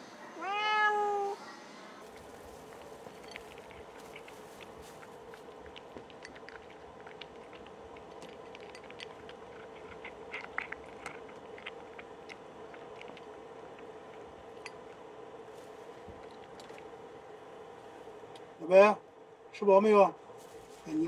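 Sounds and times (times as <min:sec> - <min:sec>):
person chewing: 0:02.0 - 0:17.0.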